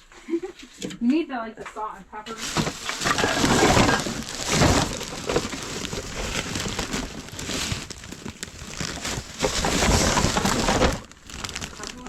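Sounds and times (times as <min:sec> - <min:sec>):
plastic containers and bags rustling: 0:02.2 - 0:12.0.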